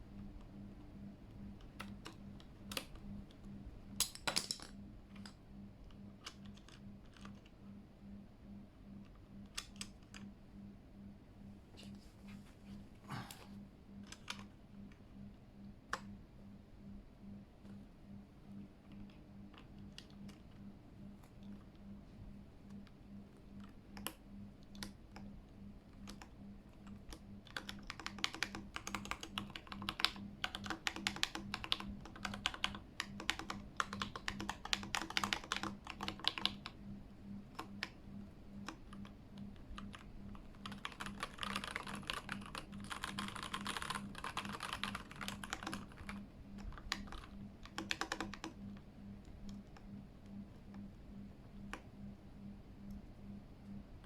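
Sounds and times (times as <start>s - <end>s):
mechanical keyboard typing: 1.6s - 3.4s, 6.2s - 7.6s, 9.0s - 10.3s, 14.0s - 14.6s, 18.8s - 20.6s, 23.6s - 25.3s, 25.9s - 36.8s, 37.5s - 38.0s, 38.6s - 49.9s.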